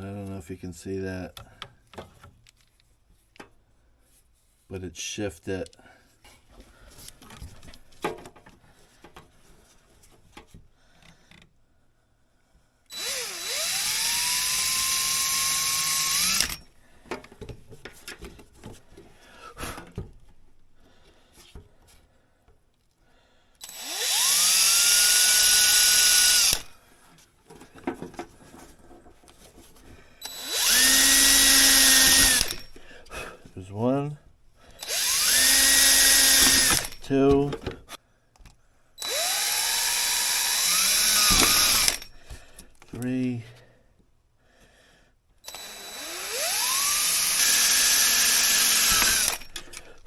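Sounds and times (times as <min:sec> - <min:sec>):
clicking and tool handling: 0:01.4 - 0:03.6, 0:05.6 - 0:11.5, 0:16.1 - 0:19.2, 0:26.5 - 0:33.6, 0:34.7 - 0:39.1, 0:48.7 - 0:50.0
power drill whining: 0:12.9 - 0:19.1, 0:23.6 - 0:26.8, 0:30.2 - 0:33.6, 0:34.7 - 0:37.7, 0:39.0 - 0:42.8, 0:45.4 - 0:50.0.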